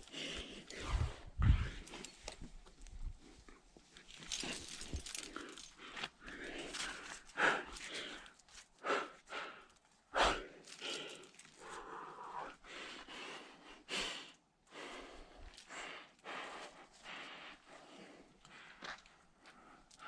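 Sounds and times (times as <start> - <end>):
person breathing hard: 0.0 - 2.1, 4.3 - 20.0.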